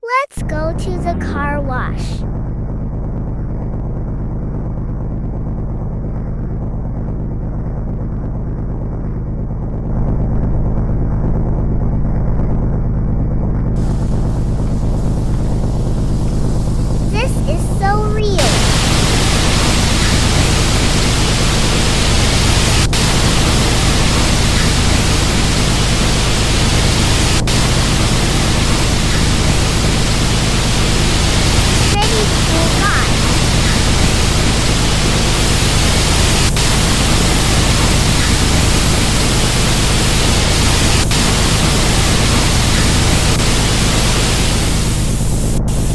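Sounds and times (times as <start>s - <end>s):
car wash water spray and machinery: 13.8s - 45.9s.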